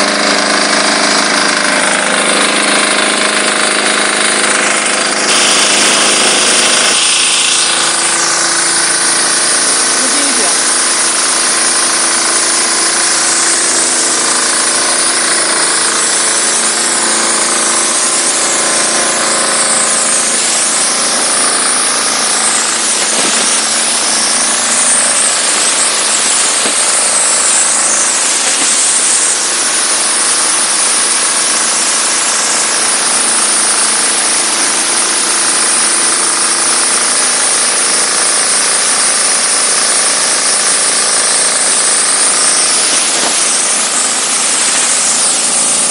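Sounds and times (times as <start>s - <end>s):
diesel engine humming: 0.0s - 11.7s
pressure washer jet hissing: 0.0s - 45.9s.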